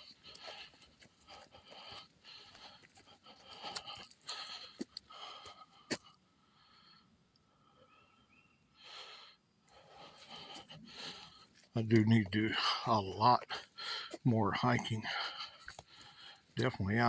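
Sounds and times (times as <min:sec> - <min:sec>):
man breathing heavily: 0:00.0 - 0:07.8, 0:08.8 - 0:16.6.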